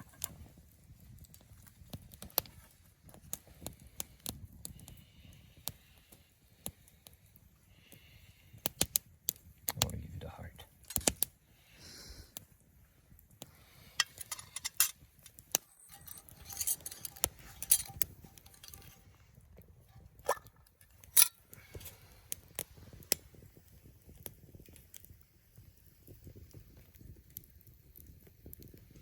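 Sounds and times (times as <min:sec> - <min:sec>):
metal cookware clinking: 0:14.0 - 0:19.0, 0:20.2 - 0:21.9.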